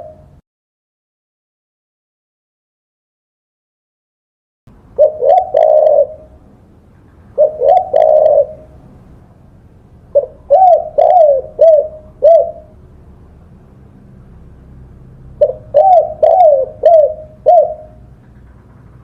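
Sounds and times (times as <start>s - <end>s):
dove cooing: 0.0s - 0.3s, 5.0s - 6.5s, 7.3s - 8.8s, 10.1s - 12.8s, 15.3s - 18.4s.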